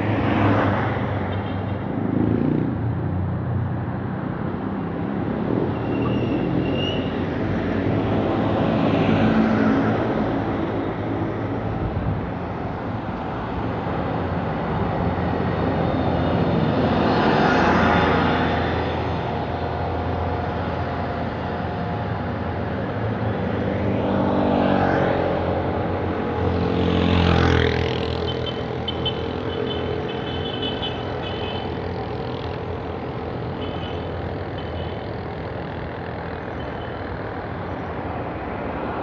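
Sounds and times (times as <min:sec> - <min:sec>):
rumble of traffic: 0:00.0 - 0:39.0
vehicles passing close by: 0:00.0 - 0:39.0.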